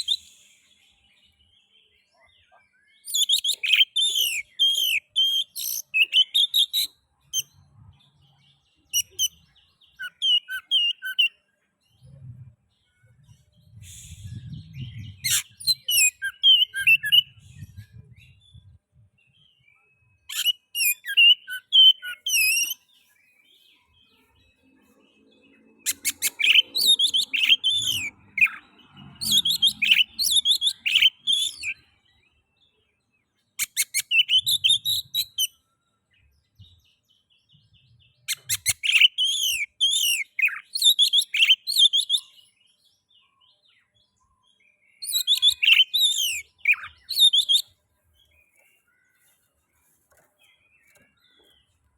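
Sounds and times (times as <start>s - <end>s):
bird singing whistled phrases: 0.0s - 0.6s, 3.0s - 7.0s, 10.0s - 11.4s, 13.8s - 18.2s, 19.8s - 22.8s, 25.9s - 28.6s, 29.2s - 31.8s, 33.6s - 35.5s, 38.2s - 42.5s, 45.0s - 47.7s.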